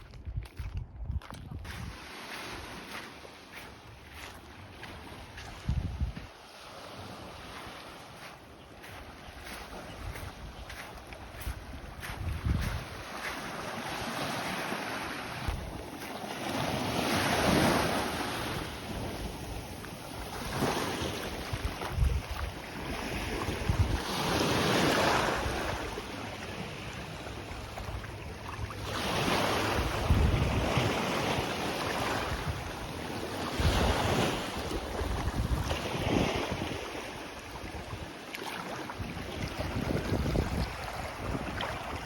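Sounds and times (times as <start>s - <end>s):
wind buffeting microphone: 0.0s - 2.1s, 5.3s - 6.4s, 8.3s - 13.4s, 18.5s - 24.1s, 29.6s - 31.4s, 33.6s - 37.0s, 39.0s - 42.0s
waves washing on beach: 1.7s - 42.0s.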